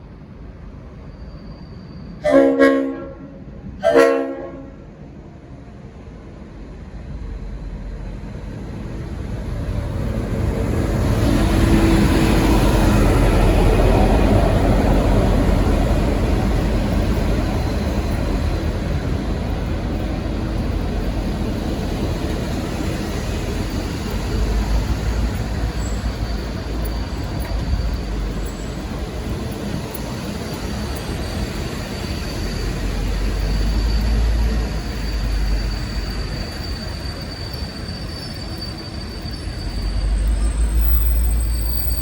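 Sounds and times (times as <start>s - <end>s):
train rumbling past: 0.0s - 42.0s
high wheel squeal: 1.0s - 2.2s, 10.6s - 42.0s.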